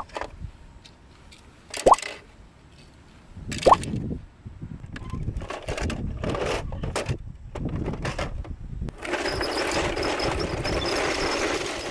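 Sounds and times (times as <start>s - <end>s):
toy engine running with whine: 9.0s - 11.9s.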